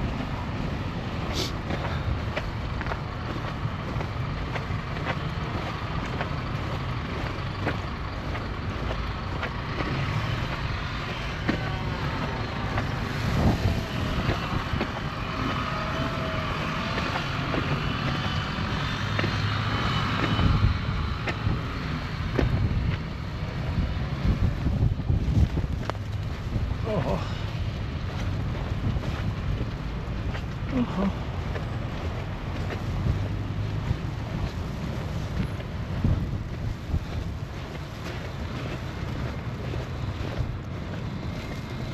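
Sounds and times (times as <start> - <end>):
motor traffic rumble: 0.0 - 41.9
wind noise: 0.0 - 41.9.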